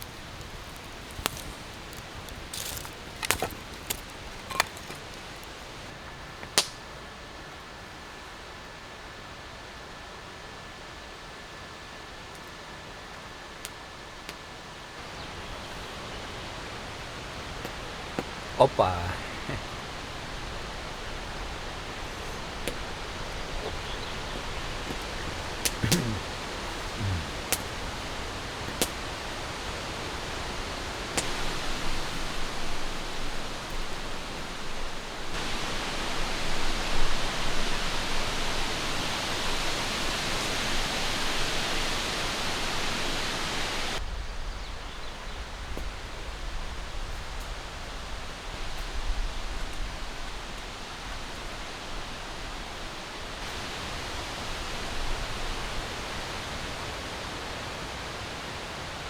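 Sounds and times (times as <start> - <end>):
wind rushing through forest: 0.0 - 12.3, 12.9 - 59.0.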